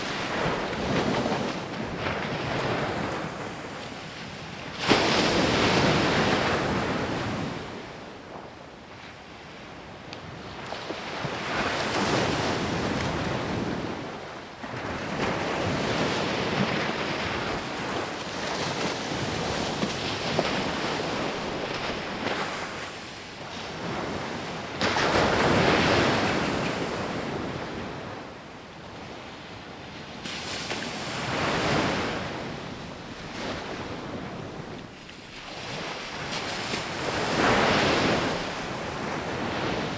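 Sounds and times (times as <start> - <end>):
ocean surf breaking on beach: 30.3 - 39.9.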